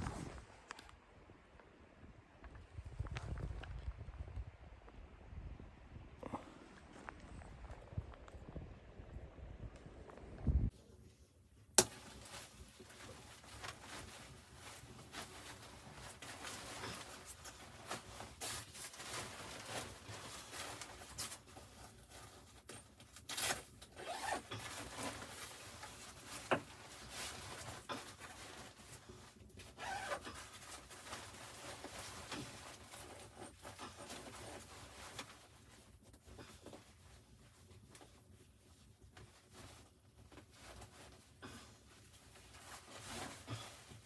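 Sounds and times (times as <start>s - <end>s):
rustling and scraping of handled gear: 10.7s - 44.0s.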